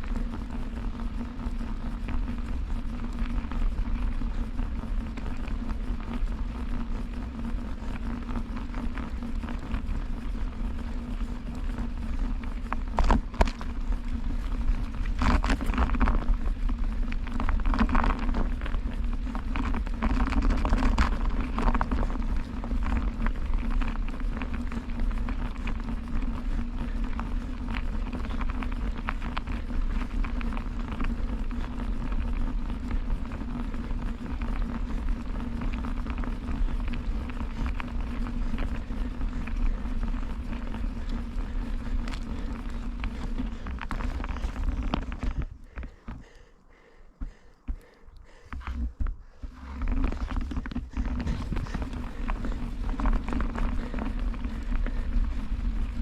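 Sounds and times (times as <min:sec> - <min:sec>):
bicycle tyre and wind noise: 0:00.0 - 0:56.0
low hum: 0:00.0 - 0:56.0.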